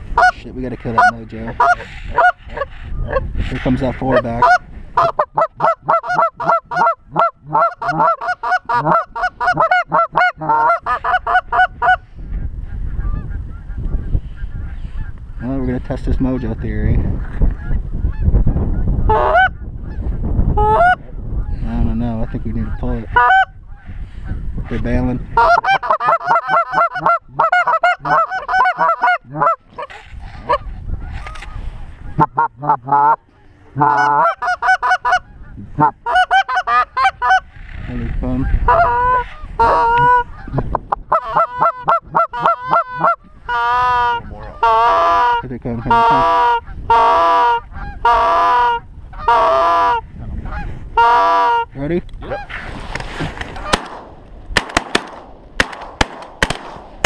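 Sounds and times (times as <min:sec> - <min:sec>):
wind rumbling on microphone: 0:00.0 - 0:57.0
goose honking: 0:00.2 - 0:03.2, 0:04.0 - 0:12.0, 0:22.6 - 0:23.5, 0:25.2 - 0:30.7, 0:31.4 - 0:51.7.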